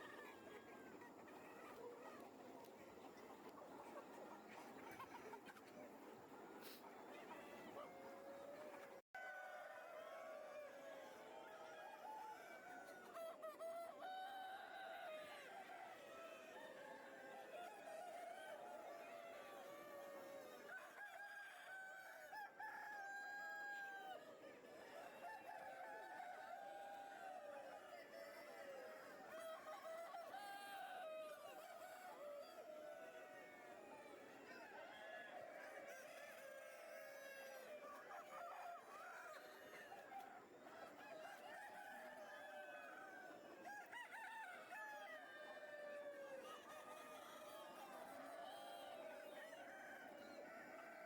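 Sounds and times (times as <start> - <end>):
chickens clucking: 0.0 - 9.0, 37.5 - 41.2
faint rooster crowing: 6.3 - 51.0
rooster crowing: 40.9 - 48.3.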